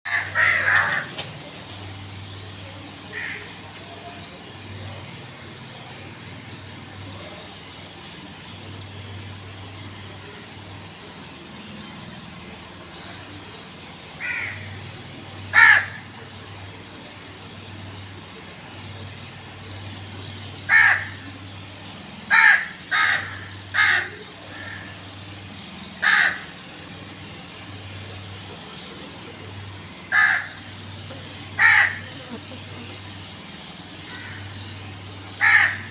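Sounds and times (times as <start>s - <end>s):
crow cawing: 0.1s - 1.2s, 3.1s - 3.6s, 14.2s - 14.7s, 15.5s - 16.1s, 20.7s - 21.2s, 22.3s - 25.0s, 26.0s - 26.6s, 30.1s - 30.6s, 31.6s - 32.4s, 34.1s - 34.6s, 35.4s - 35.9s.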